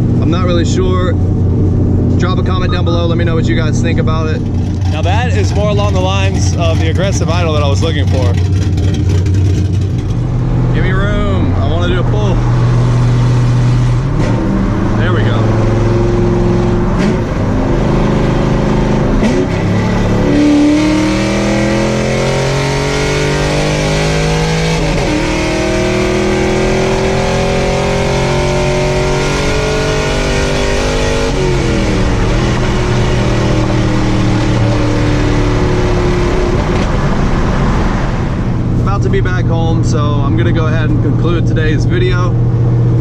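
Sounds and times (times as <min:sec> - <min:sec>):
loud car engine revving: 0:00.0 - 0:43.0.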